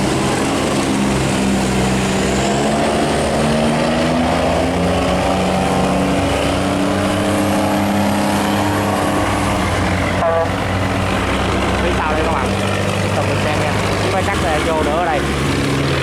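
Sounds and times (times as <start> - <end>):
boat engines droning: 0.0 - 16.0.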